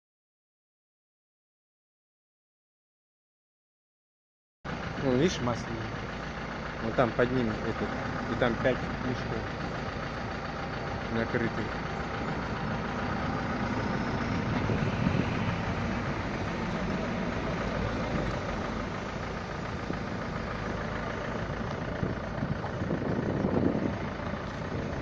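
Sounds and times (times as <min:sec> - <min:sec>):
road noise: 0:04.7 - 0:25.0
vehicle engine: 0:04.7 - 0:25.0.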